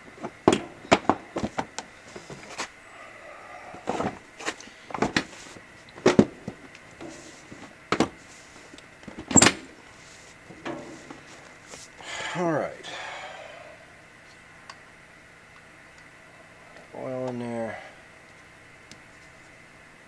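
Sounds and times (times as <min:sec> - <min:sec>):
tools and parts knocking: 0:00.2 - 0:01.8.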